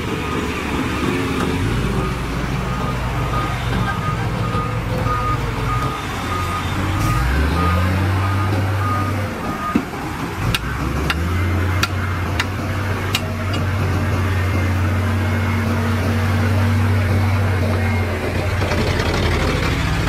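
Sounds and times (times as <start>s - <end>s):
heavy diesel engine droning: 0.0s - 20.0s
reversing beep: 0.9s - 9.9s, 13.4s - 18.4s.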